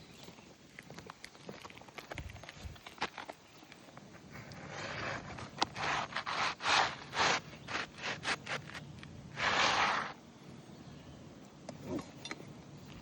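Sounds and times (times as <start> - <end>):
hand tool scraping shingles: 4.4 - 10.2.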